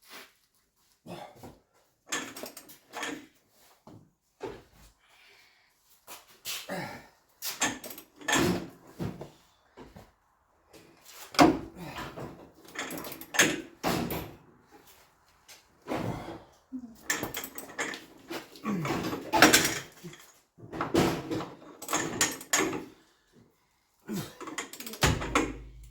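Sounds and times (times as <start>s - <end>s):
metal tools clanking: 24.5s - 25.9s.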